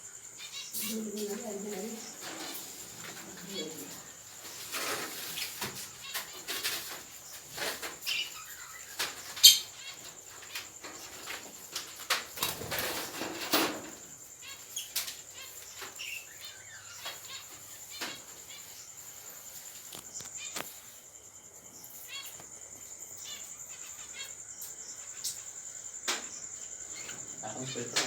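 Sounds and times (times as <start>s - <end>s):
birds chirping: 0.0s - 28.0s
birds fluttering wings: 0.7s - 21.0s.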